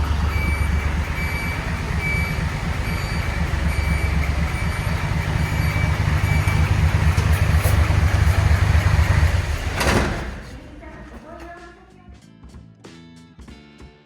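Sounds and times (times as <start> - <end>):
reversing beeper: 0.0 - 9.6
truck diesel engine rumbling: 0.0 - 11.8.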